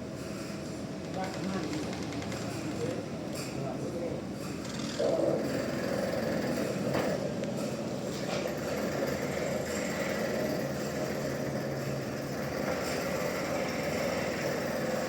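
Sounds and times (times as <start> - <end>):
sawmill machinery humming: 4.2 - 15.0.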